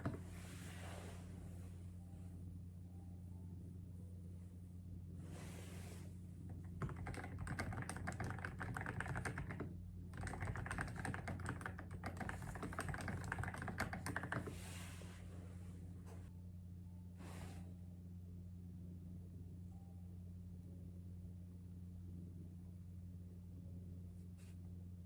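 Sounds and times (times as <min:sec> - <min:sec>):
fast typing on keyboard: 0:06.8 - 0:14.6.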